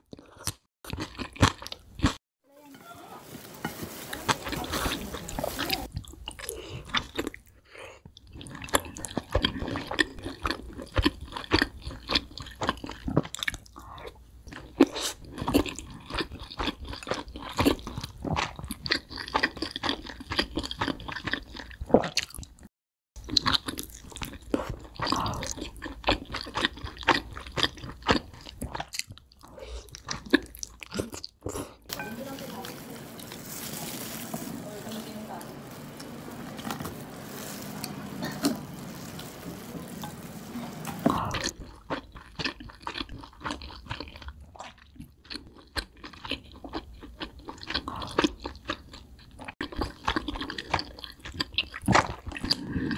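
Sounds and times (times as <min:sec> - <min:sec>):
chewing and crunching fried chicken: 0:00.0 - 0:02.2, 0:03.3 - 0:52.9
wet mouth sounds: 0:41.0 - 0:43.8.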